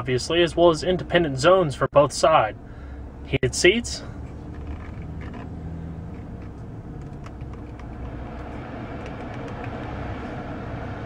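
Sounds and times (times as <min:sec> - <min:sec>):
car engine idling: 0:00.0 - 0:11.0
climate control fan: 0:02.2 - 0:11.0.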